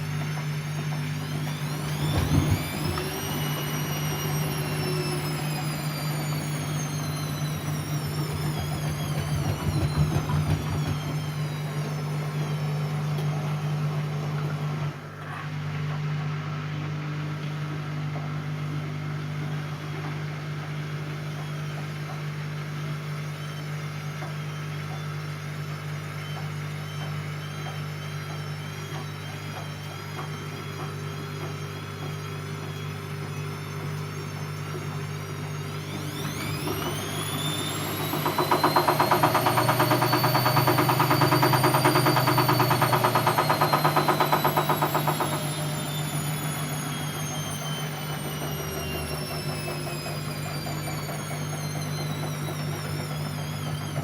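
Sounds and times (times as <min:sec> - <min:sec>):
motor whine rising in pitch: 0:00.0 - 0:54.0
washing machine motor hum: 0:00.0 - 0:54.0
rhythmic pulsing of turning drum: 0:00.6 - 0:12.5, 0:36.2 - 0:54.0.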